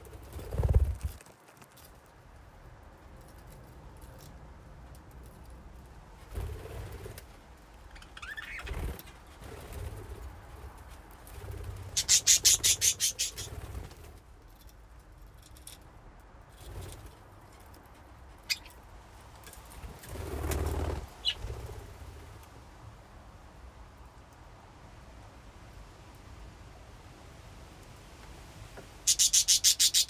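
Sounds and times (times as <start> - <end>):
wing flapping: 0.0 - 1.9, 6.2 - 7.4, 8.2 - 14.2, 19.7 - 22.3
budgerigars chirping: 8.0 - 8.7, 12.0 - 13.5, 18.5 - 18.7, 29.1 - 30.0.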